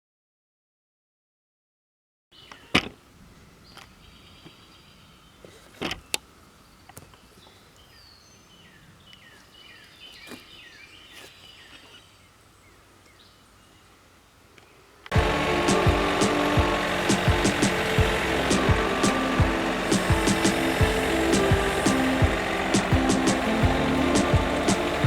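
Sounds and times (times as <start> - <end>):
small birds chirping: 2.4 - 25.0
sawmill machine running: 15.1 - 25.0.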